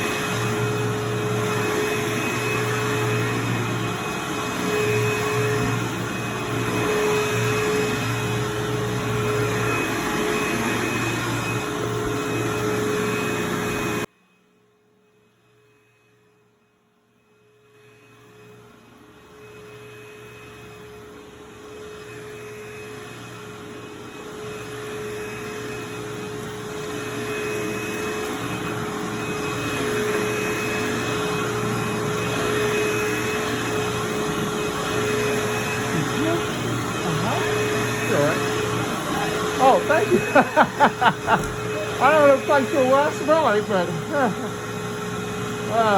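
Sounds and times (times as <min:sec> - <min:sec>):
vacuum cleaner on carpet: 0:00.0 - 0:14.1, 0:15.2 - 0:16.2, 0:17.3 - 0:45.9.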